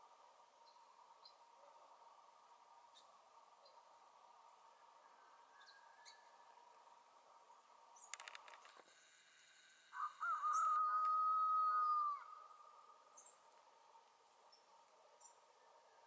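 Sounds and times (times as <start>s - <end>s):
background hiss: 0.0s - 16.0s
faint bird chirps: 2.9s - 6.7s, 8.0s - 13.5s.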